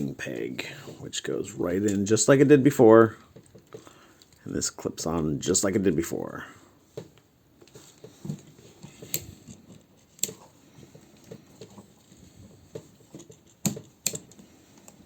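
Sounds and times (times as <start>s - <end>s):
plastic parts tapping and rattling: 3.1s - 4.6s, 6.9s - 15.0s.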